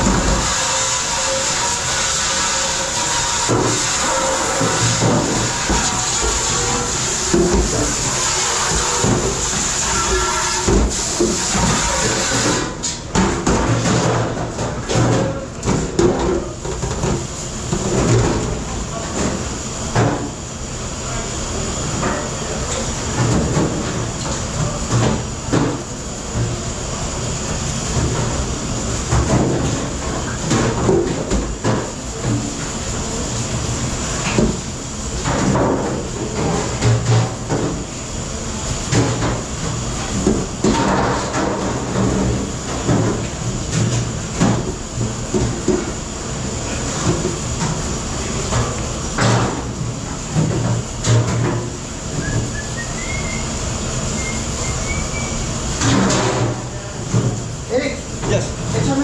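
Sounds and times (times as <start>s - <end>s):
dishes and racks clattering: 0.0s - 20.4s, 29.1s - 33.3s, 35.2s - 37.9s, 38.9s - 46.0s, 46.7s - 53.4s
machine din with low hum: 0.0s - 59.0s.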